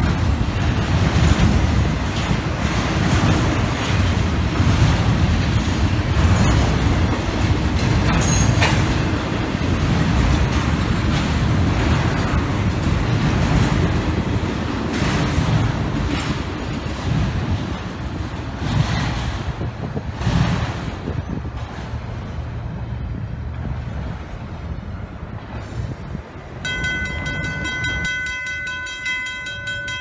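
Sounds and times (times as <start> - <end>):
wheels clicking over rails: 0.0 - 22.4
train rumbling past: 0.0 - 30.0.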